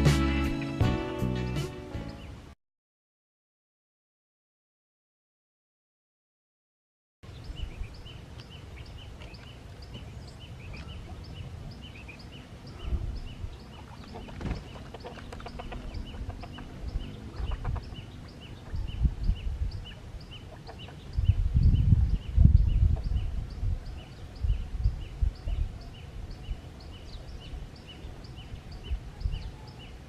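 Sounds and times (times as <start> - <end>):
low rumbling wind: 7.2 - 30.0
small bird chirping: 7.3 - 30.0.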